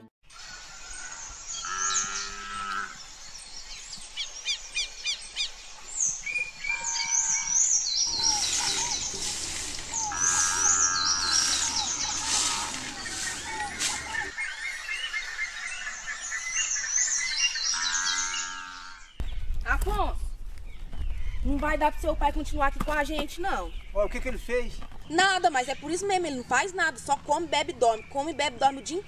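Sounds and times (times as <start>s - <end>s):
small birds chirping: 0.4s - 29.0s
broom sweeping dirt: 8.1s - 14.4s.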